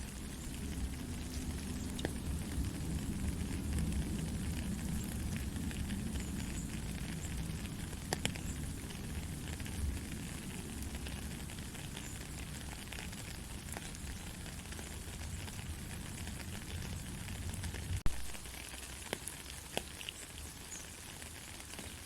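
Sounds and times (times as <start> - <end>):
soft rain falling: 0.0 - 22.0
sharp water drip: 0.1 - 9.8.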